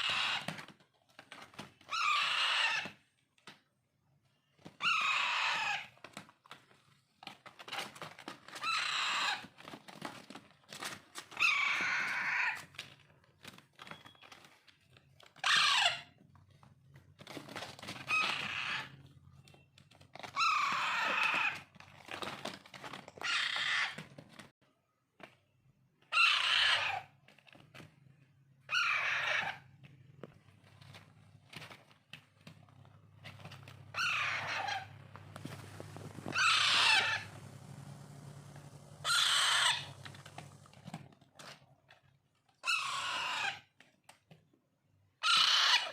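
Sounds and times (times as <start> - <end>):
parakeet chicks squawking: 0.0 - 0.7, 1.8 - 3.0, 4.8 - 5.9, 8.5 - 9.5, 11.3 - 12.6, 15.4 - 16.2, 17.9 - 19.0, 20.3 - 21.7, 23.2 - 24.0, 26.1 - 27.1, 28.7 - 29.7, 33.2 - 40.6, 42.6 - 43.6, 45.2 - 45.9.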